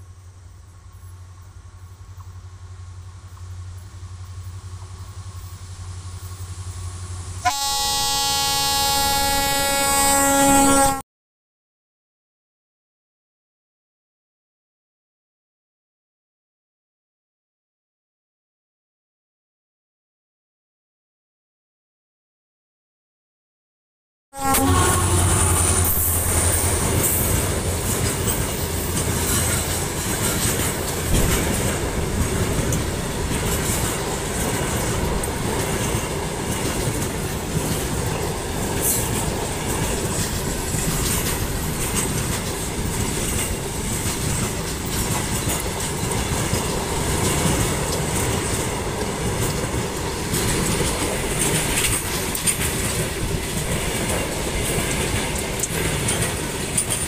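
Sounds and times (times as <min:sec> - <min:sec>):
freight train wheels clacking: 0:24.5 - 0:57.0.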